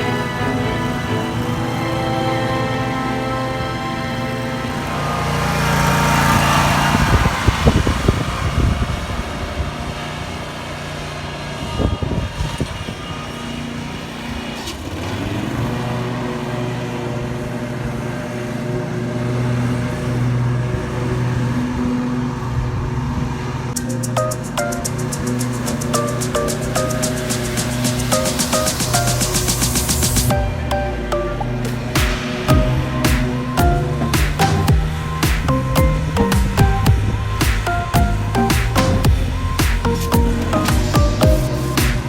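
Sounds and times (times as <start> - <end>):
engine running: 0.0 - 42.0.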